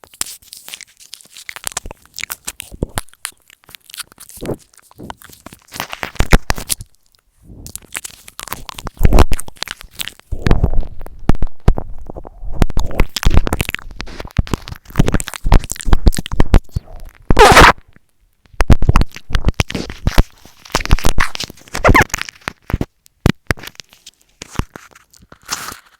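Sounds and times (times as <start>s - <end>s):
wet mouth clicks and smacks: 0.0s - 11.9s, 12.5s - 17.6s.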